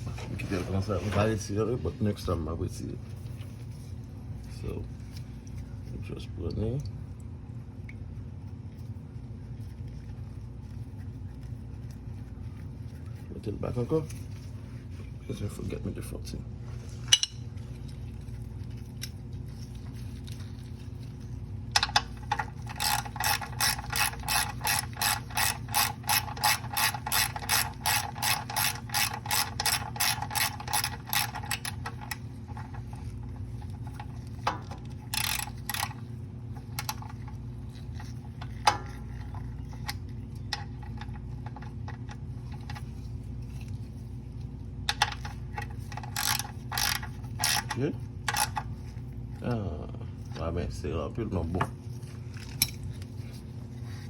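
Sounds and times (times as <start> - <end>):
ratchet wrench clicking: 21.8 - 32.1, 35.1 - 36.0, 46.0 - 48.6.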